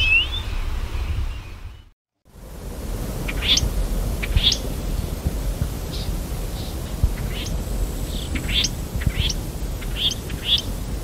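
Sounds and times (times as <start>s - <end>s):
steady recording hiss: 2.3s - 11.0s
bird calls sweeping upward: 3.2s - 5.1s, 5.9s - 10.8s
bird chirp: 3.2s - 11.0s.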